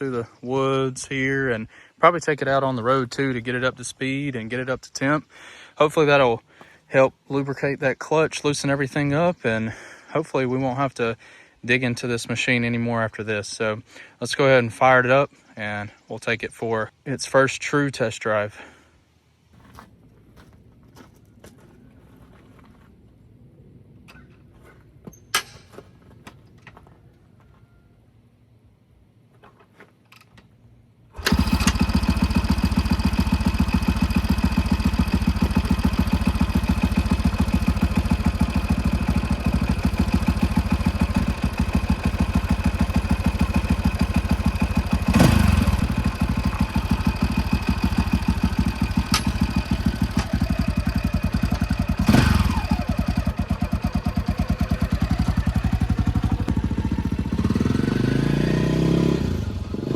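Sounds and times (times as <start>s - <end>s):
dirt bike engine idling and revving: 31.2s - 59.9s.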